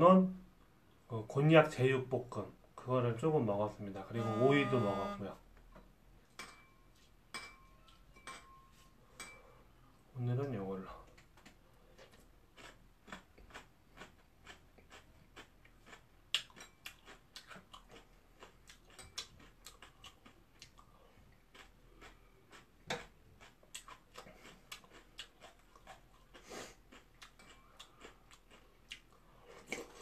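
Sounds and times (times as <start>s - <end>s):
chewing with crisp clicks: 11.0s - 30.0s.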